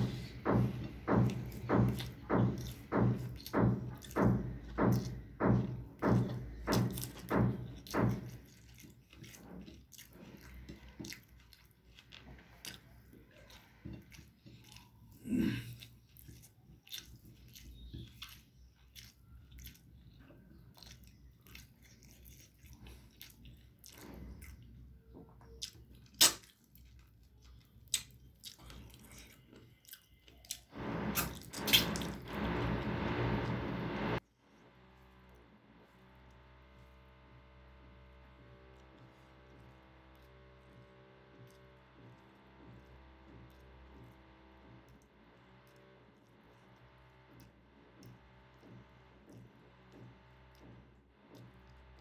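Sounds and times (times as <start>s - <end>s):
wet chewing: 0.0s - 52.0s
loud rough noise: 30.7s - 34.2s.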